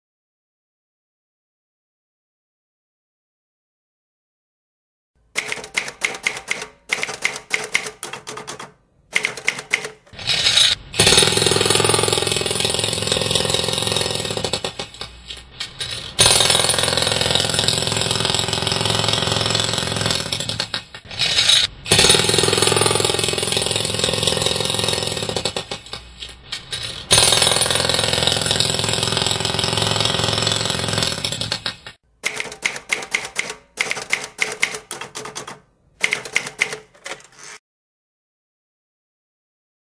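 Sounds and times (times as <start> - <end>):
quick clacking like typewriter keys: 5.4 - 10.0, 31.0 - 37.3
loud mechanical rattling: 10.2 - 32.0.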